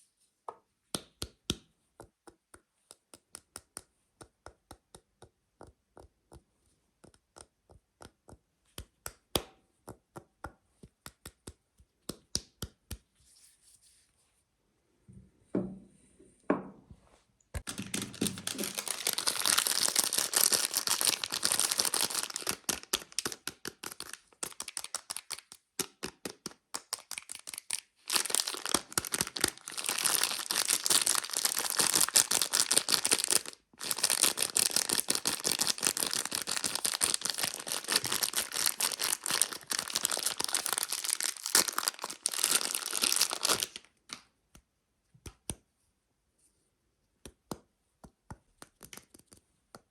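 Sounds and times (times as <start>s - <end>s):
soap wrapper crinkling: 17.6s - 44.3s.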